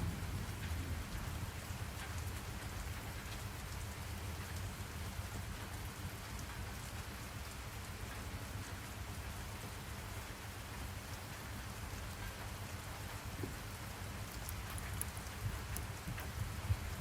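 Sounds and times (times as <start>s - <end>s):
low steady rumble: 0.0s - 3.3s
rain falling: 0.0s - 17.0s.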